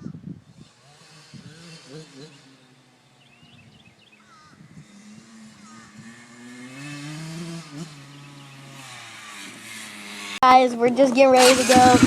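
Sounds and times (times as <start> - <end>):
off-road vehicle engine idling: 10.4 - 12.0.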